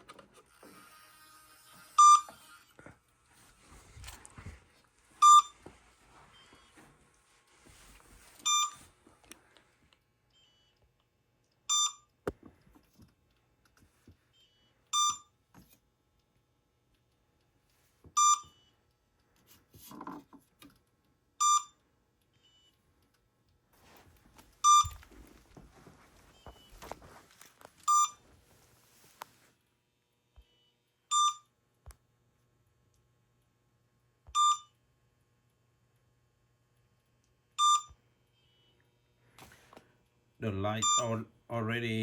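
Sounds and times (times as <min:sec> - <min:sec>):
short electronic beep: 0:02.0 - 0:02.4, 0:40.8 - 0:41.2.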